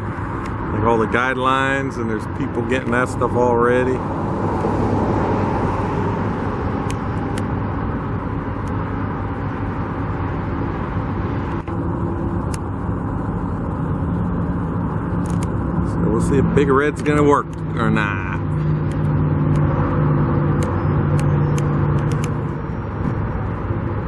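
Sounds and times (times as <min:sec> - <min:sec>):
road traffic rumble: 0:00.0 - 0:24.0
faint humming tones: 0:11.6 - 0:16.1.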